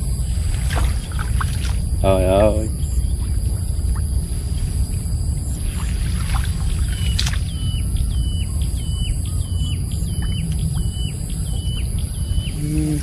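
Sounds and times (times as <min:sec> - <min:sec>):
low rumble: 0:00.0 - 0:13.0
bird hooked call: 0:06.9 - 0:07.7.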